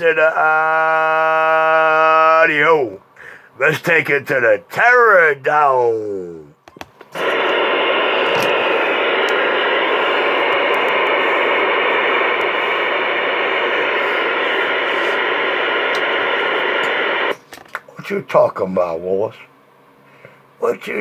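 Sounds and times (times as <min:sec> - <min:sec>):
radio static hiss: 0:00.0 - 0:00.4, 0:06.8 - 0:18.8.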